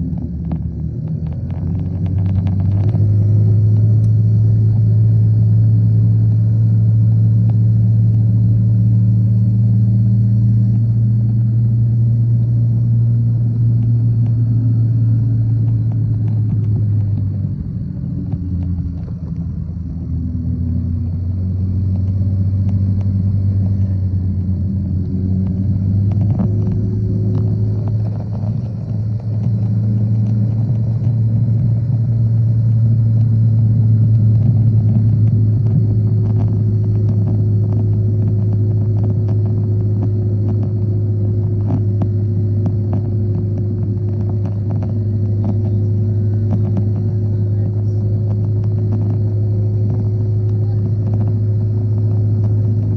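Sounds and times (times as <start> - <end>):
motorcycle engine rumbling: 0.0 - 52.9
faint ticks: 13.6 - 52.9.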